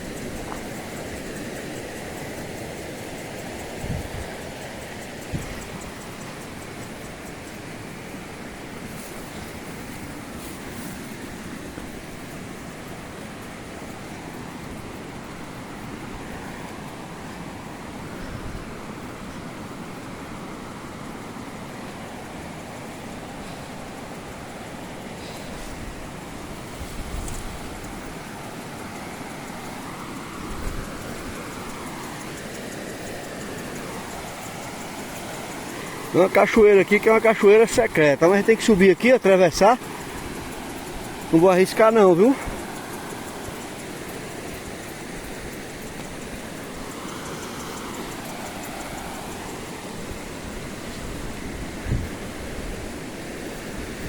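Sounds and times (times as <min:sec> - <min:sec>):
wind bumps on microphone: 0:03.6 - 0:04.6, 0:05.2 - 0:06.2, 0:25.5 - 0:28.4, 0:50.0 - 0:54.0
waterfall rushing: 0:33.0 - 0:44.6.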